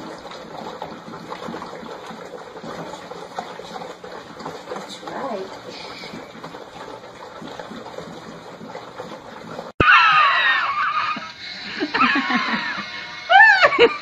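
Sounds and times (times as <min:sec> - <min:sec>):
person laughing in shrieks: 0:09.8 - 0:14.0.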